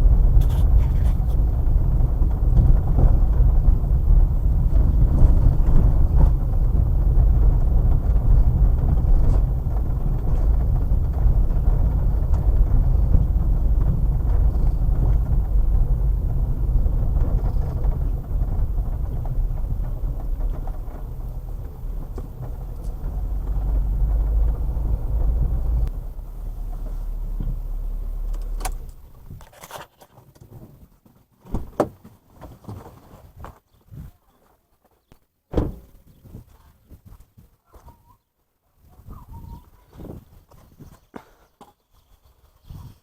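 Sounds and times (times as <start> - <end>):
car engine and road noise: 0.0 - 32.0.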